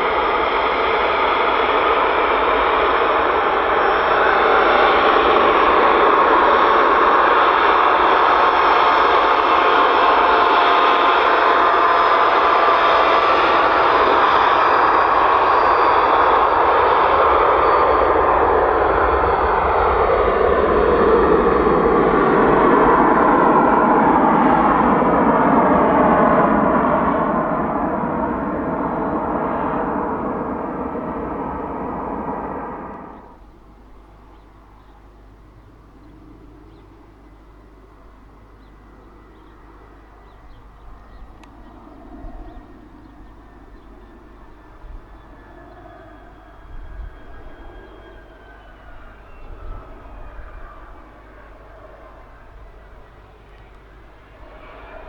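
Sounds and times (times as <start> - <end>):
faint high whining tones: 0.0 - 55.0
jet engines running: 0.0 - 55.0
birds chirping faintly: 27.0 - 46.2.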